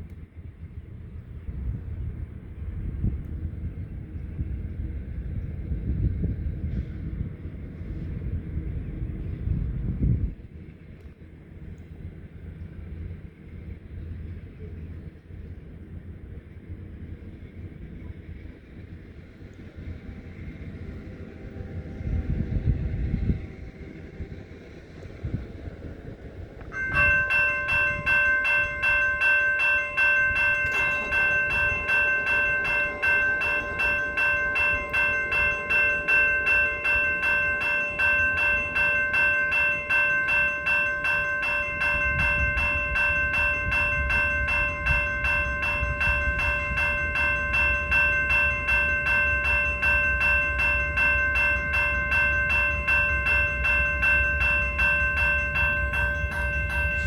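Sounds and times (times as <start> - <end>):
train rumbling: 0.0 - 57.0
railroad crossing bell ringing: 18.8 - 57.0.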